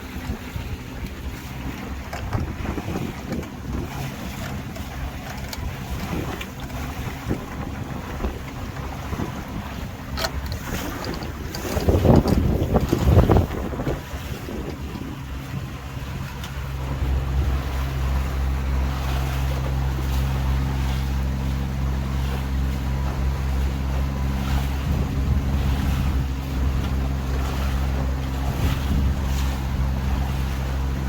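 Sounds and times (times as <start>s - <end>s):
boat engine humming: 0.0s - 31.0s
water rushing past hull: 0.0s - 31.0s
wind on microphone: 0.0s - 31.0s.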